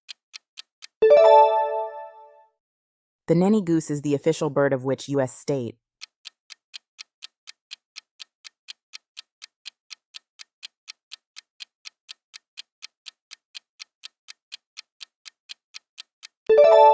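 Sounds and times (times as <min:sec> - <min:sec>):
clock ticking: 0:00.0 - 0:02.1, 0:05.4 - 0:16.9.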